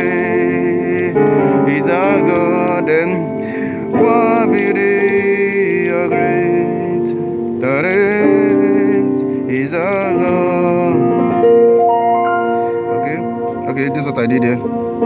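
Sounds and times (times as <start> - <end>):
man singing: 0.0 - 11.8
keyboard playing chords: 0.0 - 15.0.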